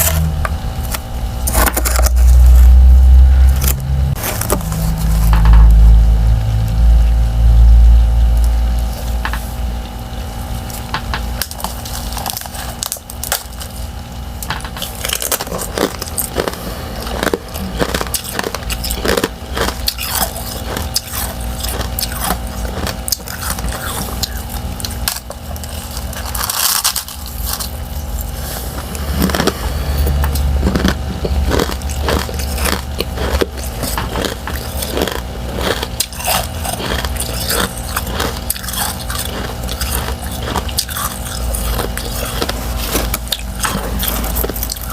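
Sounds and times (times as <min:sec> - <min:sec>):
crunchy bites into ice: 0:00.0 - 0:02.8, 0:14.6 - 0:44.9
steady low hum: 0:00.0 - 0:44.9.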